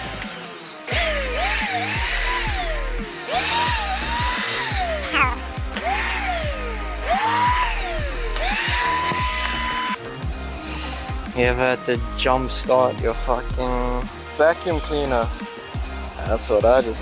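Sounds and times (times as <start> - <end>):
vacuum cleaner motor whining: 0.0 - 10.1
background music with bass line: 0.0 - 17.0.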